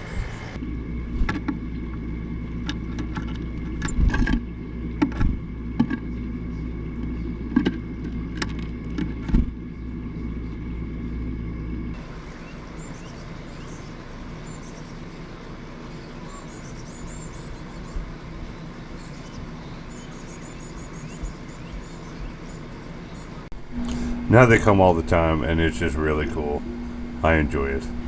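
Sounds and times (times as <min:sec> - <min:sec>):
small birds chirping: 0:12.0 - 0:28.0
low hum: 0:23.5 - 0:28.0
steady hiss: 0:23.6 - 0:28.0.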